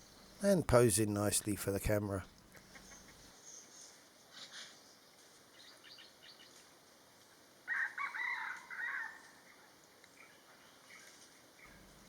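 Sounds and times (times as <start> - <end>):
small birds chirping: 2.1 - 6.8
rooster crowing: 7.7 - 9.4.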